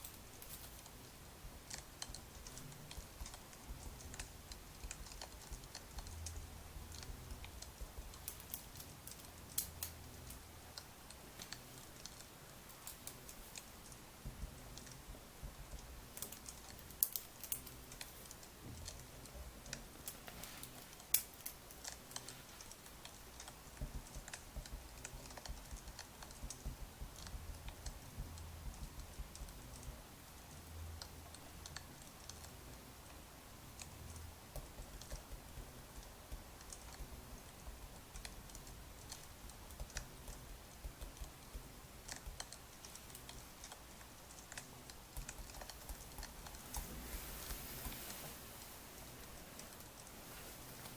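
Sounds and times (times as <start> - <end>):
firewood crackling: 45.6 - 50.9.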